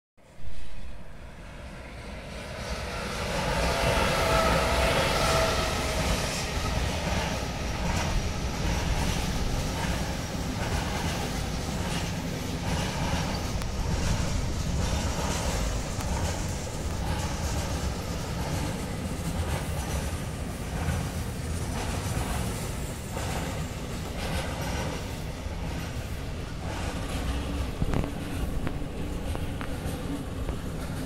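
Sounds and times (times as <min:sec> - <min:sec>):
electric locomotive whine: 0:00.2 - 0:31.0
train wheel clicks: 0:06.9 - 0:31.0.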